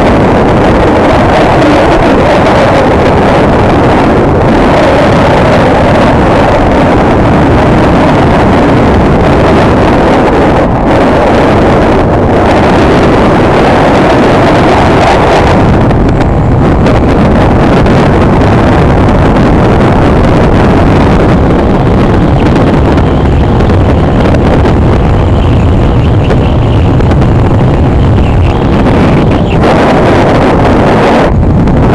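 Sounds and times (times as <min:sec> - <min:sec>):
wind on microphone: 0:00.0 - 0:31.9
motorcycle engine running: 0:14.2 - 0:30.3.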